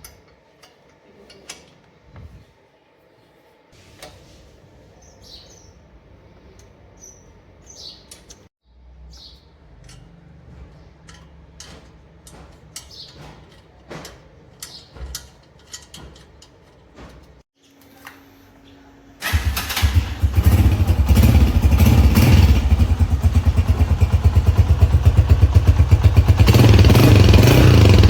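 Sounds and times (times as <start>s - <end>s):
small birds chirping: 4.9s - 9.7s, 12.7s - 13.5s, 14.6s - 15.1s
sharp clicks and knocks: 9.8s - 17.4s.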